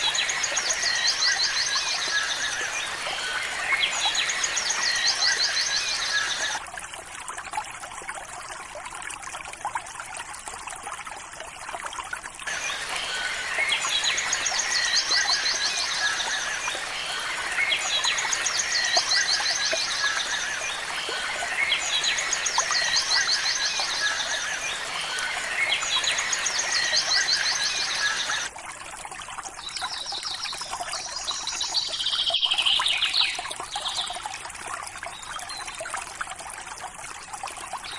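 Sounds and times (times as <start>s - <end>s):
birds chirping: 0.0s - 6.6s, 12.5s - 28.5s.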